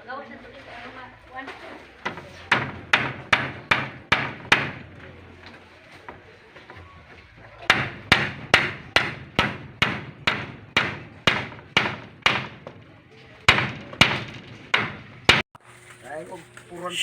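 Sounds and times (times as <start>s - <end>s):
hammer blows ringing: 2.3s - 5.2s, 7.7s - 12.8s.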